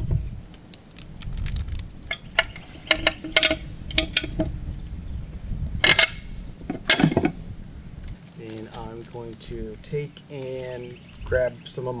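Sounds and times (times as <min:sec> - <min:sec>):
low steady rumble: 0:00.0 - 0:11.6
small steel hardware clinking: 0:01.4 - 0:04.5, 0:05.8 - 0:07.3.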